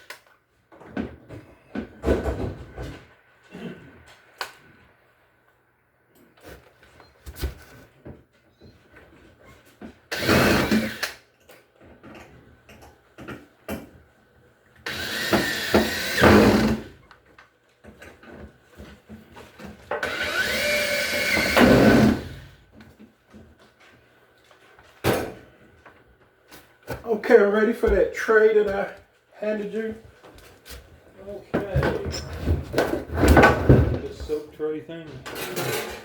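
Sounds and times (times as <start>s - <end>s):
power drill motor whine: 10.1s - 11.2s, 14.9s - 16.9s, 20.0s - 22.4s.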